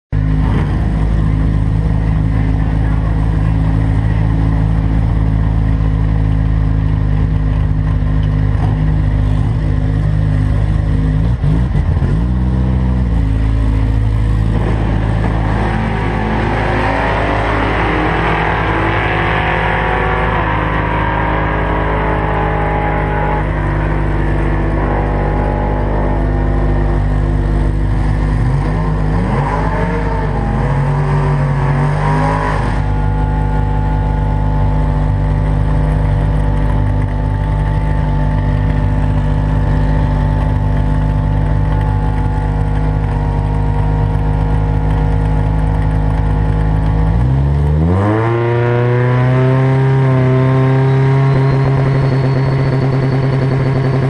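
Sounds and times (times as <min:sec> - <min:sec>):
car engine idling and revving: 0:00.1 - 0:54.0.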